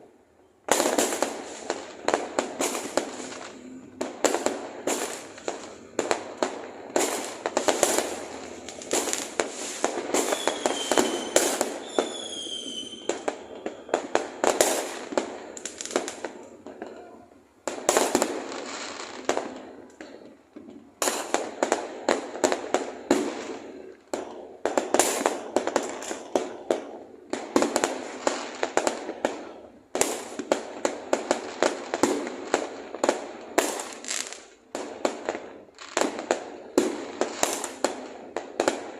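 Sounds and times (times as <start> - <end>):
fireworks bangs and crackles: 0.0 - 38.9
firework whistle: 7.0 - 15.0.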